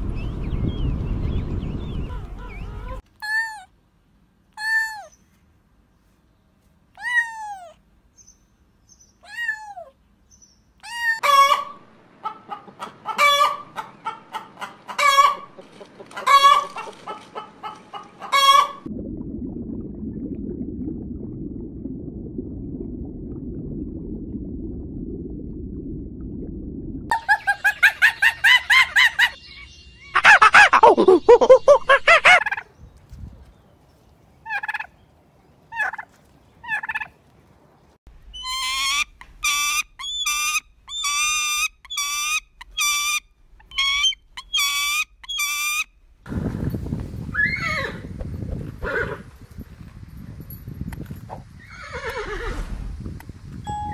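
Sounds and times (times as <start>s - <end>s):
chicken calls: 1.8s - 3.0s, 11.2s - 18.9s, 27.1s - 32.7s, 38.4s - 45.9s
turkey gobbling: 11.2s - 18.9s, 30.2s - 32.7s, 34.5s - 34.9s, 35.7s - 36.1s, 36.7s - 37.1s, 38.4s - 45.9s.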